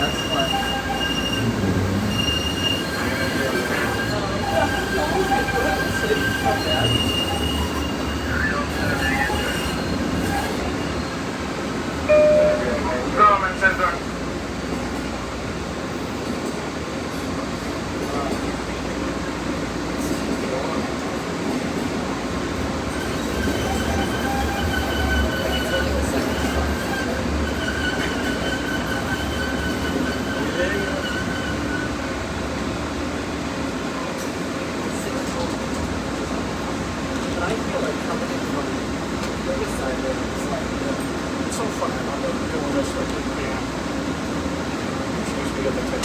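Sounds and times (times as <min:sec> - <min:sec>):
wheels squealing: 0:00.0 - 0:11.3, 0:22.9 - 0:32.1
train wheels squealing on rails: 0:00.0 - 0:14.0, 0:15.9 - 0:46.0
low train rumble: 0:00.0 - 0:46.0.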